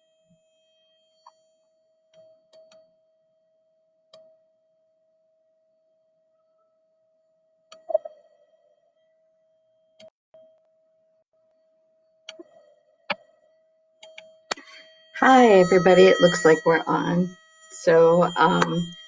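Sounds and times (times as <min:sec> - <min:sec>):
steady pure tone: 0:14.5 - 0:19.0.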